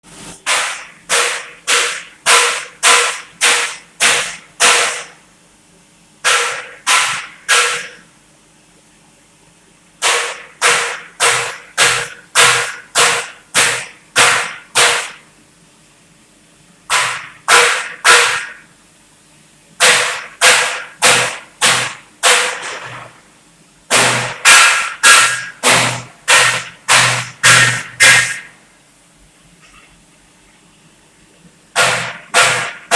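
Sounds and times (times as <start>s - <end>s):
hammer striking metal: 0.5s - 5.1s, 6.2s - 8.0s, 10.0s - 15.2s, 16.9s - 18.6s, 19.8s - 23.0s, 23.9s - 28.5s, 31.8s - 32.9s.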